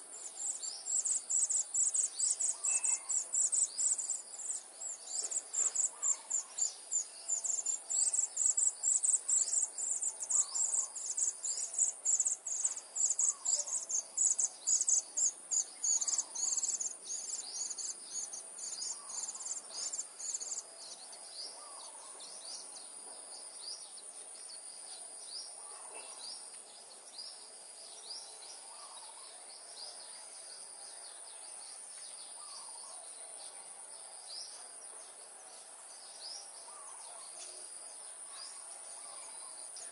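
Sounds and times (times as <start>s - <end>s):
insects droning: 0.0s - 39.9s
bird calls: 0.3s - 8.7s, 9.4s - 22.7s, 27.3s - 29.6s.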